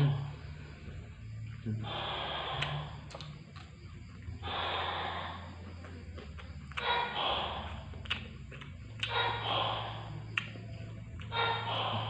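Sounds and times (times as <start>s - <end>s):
chewing clicks: 2.6s - 4.3s, 5.6s - 7.0s, 7.7s - 9.3s, 10.2s - 11.4s.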